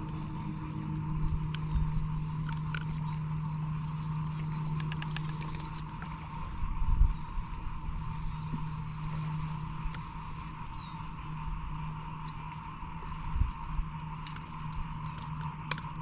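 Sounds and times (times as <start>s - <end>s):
boat motor humming: 0.0s - 16.0s
fishing tackle clicking and knocking: 4.7s - 6.6s.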